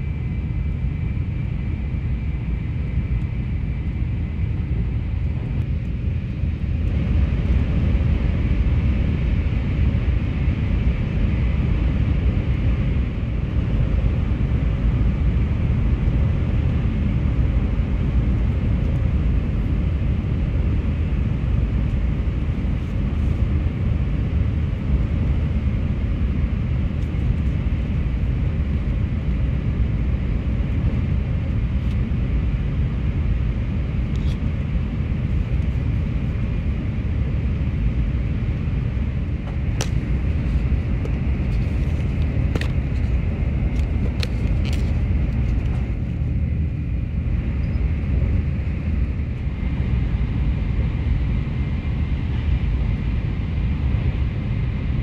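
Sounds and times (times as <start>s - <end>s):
train running low rumble: 0.0s - 55.0s.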